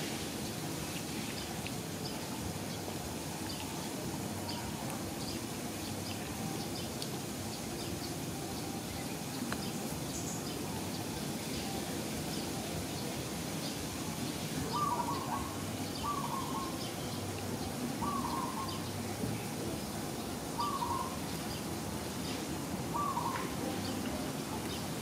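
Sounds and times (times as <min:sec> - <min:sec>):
low outdoor background noise: 0:00.0 - 0:25.0
bird calling: 0:14.6 - 0:17.0, 0:18.0 - 0:18.8, 0:20.6 - 0:21.2, 0:22.9 - 0:24.0.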